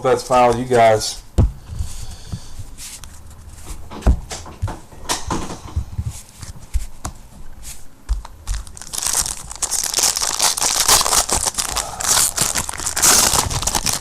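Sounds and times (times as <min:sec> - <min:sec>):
plastic wrappers crinkling: 0:08.2 - 0:14.0.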